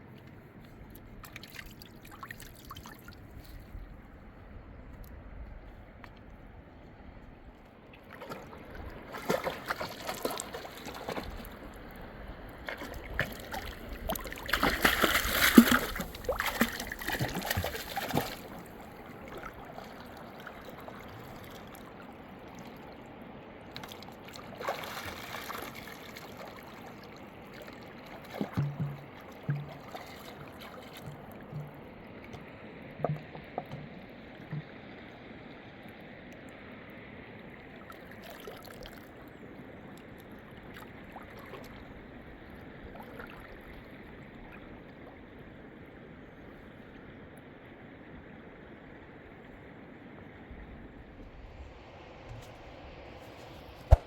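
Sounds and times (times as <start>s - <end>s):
river water splashing: 0.0s - 5.0s, 5.8s - 54.0s
water trickling: 8.0s - 21.7s, 24.6s - 35.1s.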